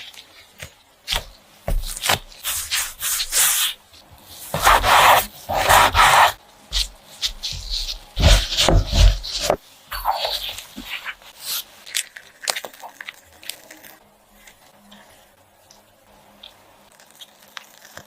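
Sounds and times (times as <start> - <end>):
hands rubbing dough: 0.0 - 11.8.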